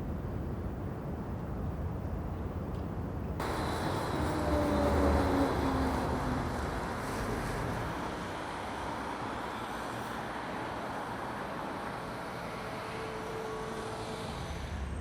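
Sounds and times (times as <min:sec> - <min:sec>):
road traffic: 0:00.0 - 0:15.0
passing vehicle rumbling: 0:03.4 - 0:15.0.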